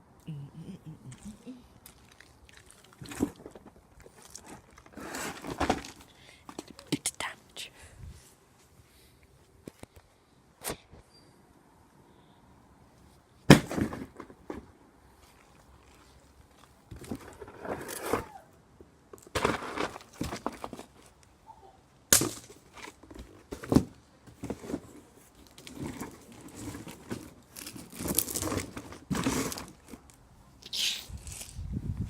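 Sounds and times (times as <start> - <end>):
pole hitting cardboard box: 13.5 - 14.2.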